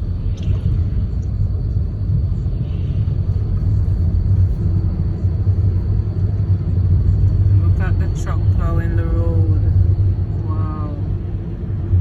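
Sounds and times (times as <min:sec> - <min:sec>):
faint engine hum: 0:00.0 - 0:12.0
motor vehicle rumbling: 0:00.0 - 0:12.0.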